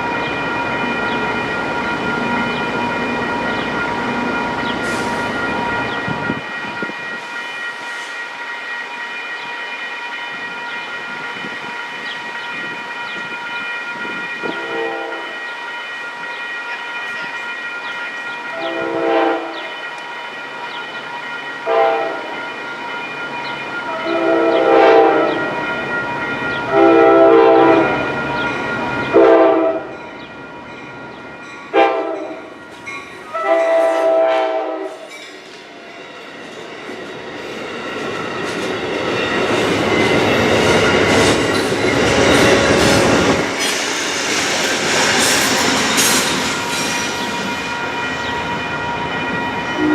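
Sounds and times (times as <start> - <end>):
train air horn blasts: 14.4 - 15.4, 18.5 - 19.7, 21.6 - 22.3, 24.0 - 25.5, 26.7 - 28.0, 29.1 - 29.9, 31.7 - 32.5, 33.3 - 35.1.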